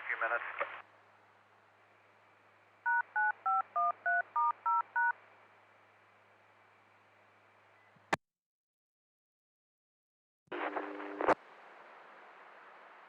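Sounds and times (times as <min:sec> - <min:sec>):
radio hiss and hum: 0:00.0 - 0:00.9, 0:10.5 - 0:11.4
touch-tone beeps: 0:02.9 - 0:05.1.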